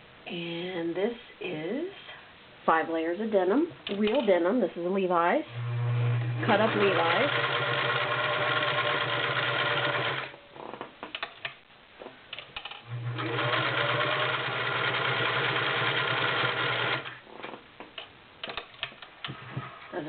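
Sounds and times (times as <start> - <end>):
sewing machine stitching: 5.6 - 10.4, 12.6 - 17.2
clicks and knocks: 10.6 - 12.8.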